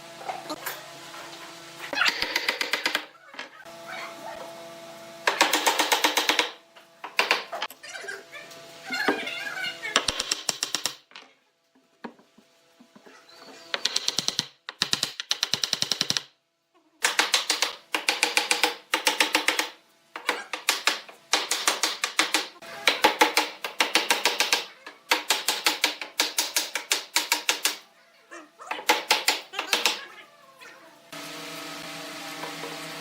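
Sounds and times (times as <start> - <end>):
rapid clicking in bursts: 13.8 - 16.3.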